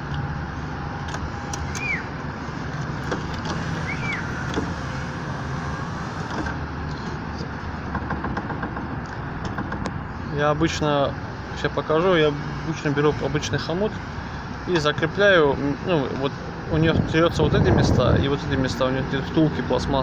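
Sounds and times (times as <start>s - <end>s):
engine hum: 0.0s - 20.0s
power window motor running: 0.6s - 6.7s
window glass rattling and knocking: 7.8s - 10.0s.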